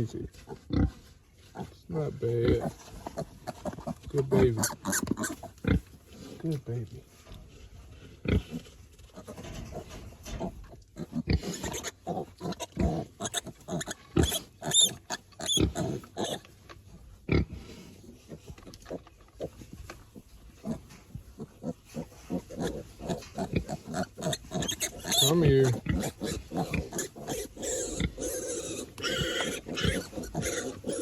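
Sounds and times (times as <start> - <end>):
pigs grunting: 0.0 - 1.0, 1.6 - 6.5, 8.2 - 8.6, 9.2 - 16.4, 20.6 - 31.0
piglet squealing: 4.6 - 5.5, 11.0 - 16.4, 21.6 - 31.0.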